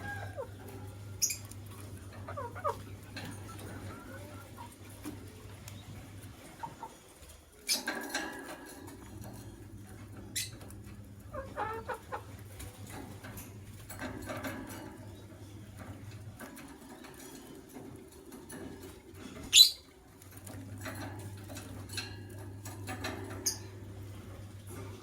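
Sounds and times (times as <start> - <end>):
birds scratching and rustling: 0.0 - 25.0
bird chirp: 1.1 - 1.5, 19.5 - 19.9
bird squeak: 19.5 - 19.8.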